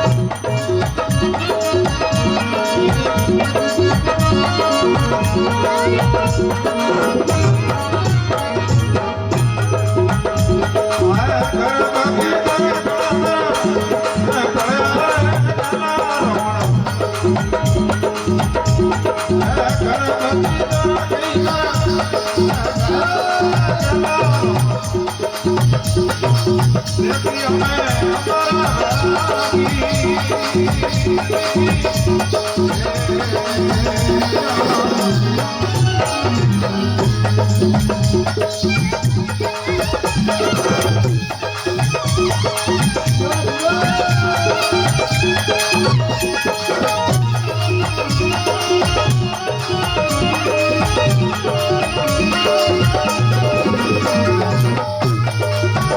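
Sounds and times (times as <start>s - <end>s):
devotional folk music: 0.0s - 55.9s
percussion beat: 0.0s - 55.9s.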